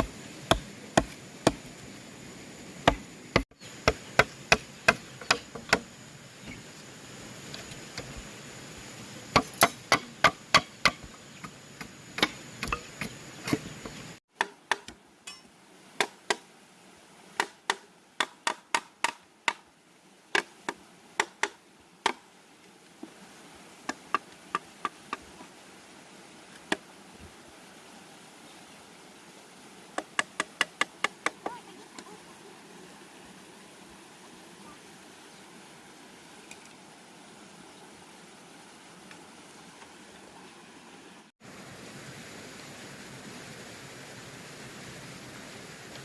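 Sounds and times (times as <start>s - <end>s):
hand tool striking bamboo: 0.0s - 1.7s, 2.8s - 5.9s, 9.3s - 16.4s, 17.4s - 19.6s.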